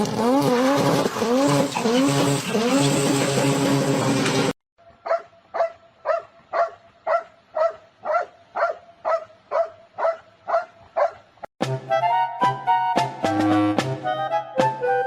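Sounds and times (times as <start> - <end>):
dog barking: 5.0 - 11.3
music: 11.6 - 15.0.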